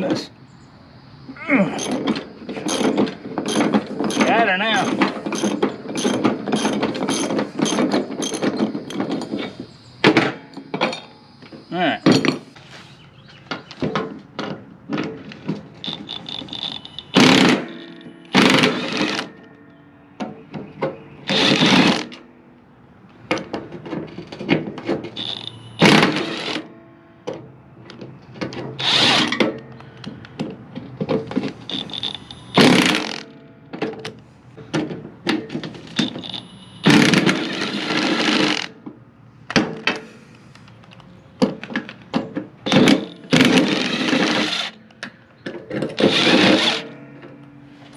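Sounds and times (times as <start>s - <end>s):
clinks and knocks of metal tools: 1.6s - 22.4s, 23.0s - 47.9s
handheld power tool bursts: 15.8s - 19.4s, 21.3s - 22.2s, 25.2s - 26.7s, 28.8s - 30.0s, 31.4s - 33.3s, 35.9s - 38.7s, 42.6s - 44.8s, 46.0s - 46.9s.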